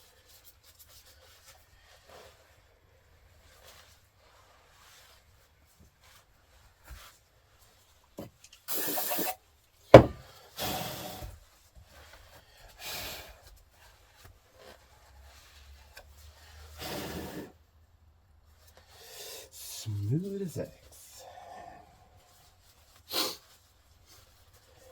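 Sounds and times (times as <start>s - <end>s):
short rubbing or hissing bursts: 8.7s - 9.4s
sharp knock: 10.0s - 10.2s.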